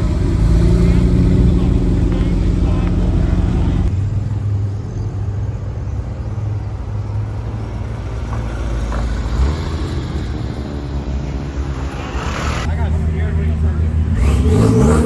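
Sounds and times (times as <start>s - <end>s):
car engine running at low revs: 0.0s - 7.8s.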